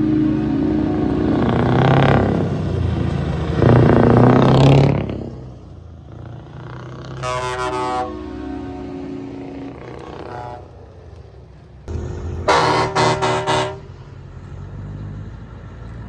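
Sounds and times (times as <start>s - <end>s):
truck engines revving: 0.0s - 16.0s
trucks driving past: 0.0s - 16.0s
horn: 7.2s - 10.8s, 12.3s - 13.9s.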